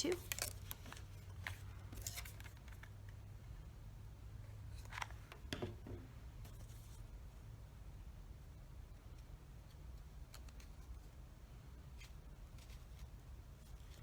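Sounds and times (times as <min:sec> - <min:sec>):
handling craft materials: 0:00.0 - 0:03.2
low steady hum: 0:00.0 - 0:14.0.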